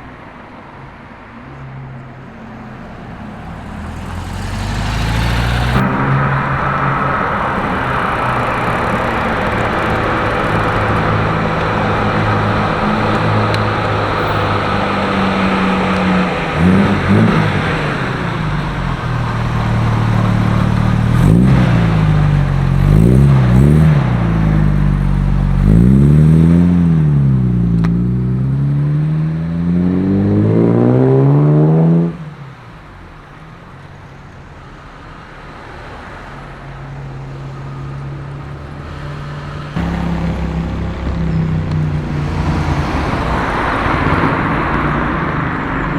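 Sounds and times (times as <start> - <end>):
car engine idling and revving: 0.0 - 45.9
quieter engine running: 2.3 - 28.3, 37.0 - 45.9.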